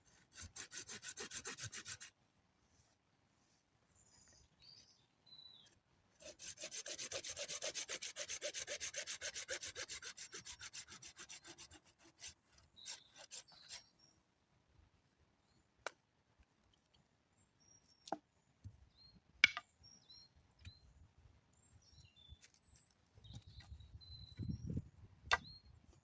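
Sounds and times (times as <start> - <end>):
hand tool scraping wood: 0.1 - 2.1, 6.2 - 13.8.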